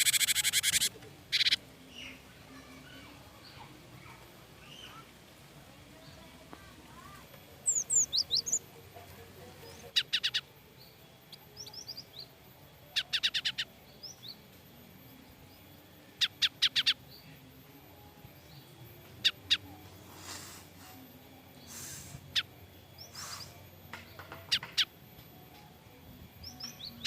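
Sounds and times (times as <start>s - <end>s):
bird harsh chattering alarm calls: 0.0s - 2.2s, 7.6s - 8.6s, 9.8s - 10.5s, 12.9s - 13.8s, 16.2s - 17.0s, 19.2s - 20.7s, 21.6s - 25.0s
thin high bird chirps: 0.0s - 5.1s, 7.0s - 8.6s.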